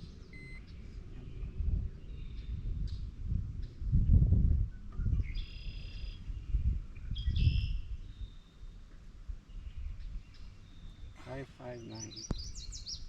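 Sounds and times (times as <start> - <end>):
low rumbling noise: 0.0 - 8.3
bird calling: 10.2 - 13.0.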